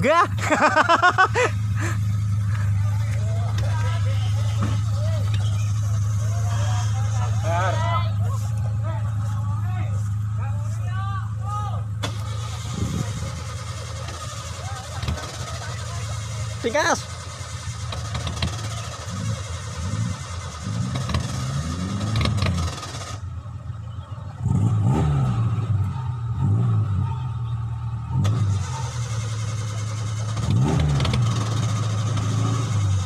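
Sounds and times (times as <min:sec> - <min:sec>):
small engine revving: 0:12.0 - 0:23.2, 0:24.4 - 0:27.2, 0:28.1 - 0:33.0.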